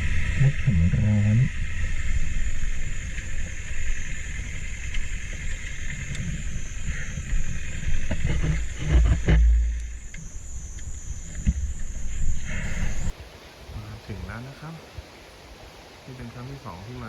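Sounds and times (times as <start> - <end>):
vehicle low rumble: 0.0 - 13.2
wind buffeting microphone: 0.0 - 17.0.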